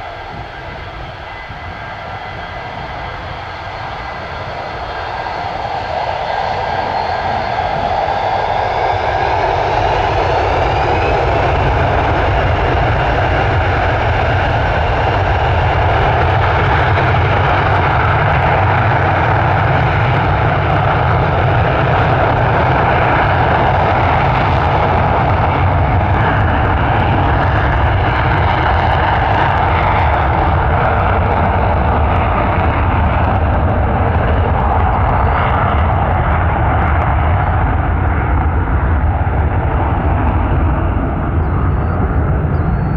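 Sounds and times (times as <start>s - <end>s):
faint gliding whines: 0.0s - 18.9s, 33.8s - 42.9s
jet engines at takeoff power: 0.0s - 42.9s.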